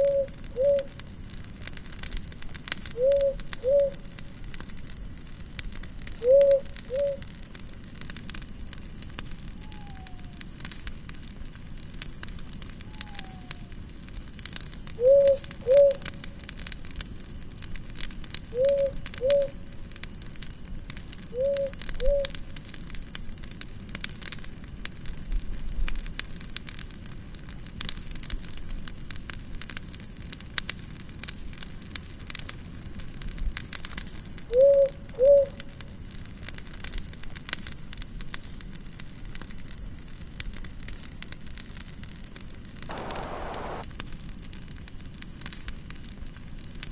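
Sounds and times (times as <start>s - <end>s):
bird hooting: 0.0s - 0.9s, 3.0s - 4.0s, 6.2s - 7.2s, 9.6s - 10.4s, 12.9s - 13.7s, 15.0s - 16.1s, 18.6s - 19.6s, 21.4s - 22.3s, 34.5s - 35.6s, 42.9s - 43.8s
campfire crackling: 0.0s - 46.9s.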